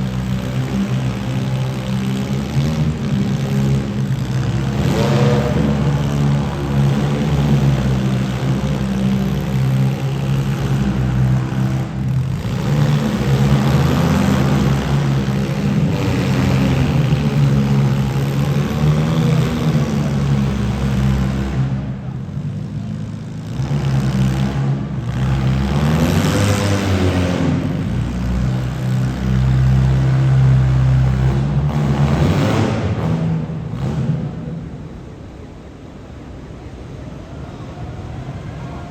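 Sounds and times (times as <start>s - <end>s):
loud car engines drone: 0.0s - 38.9s.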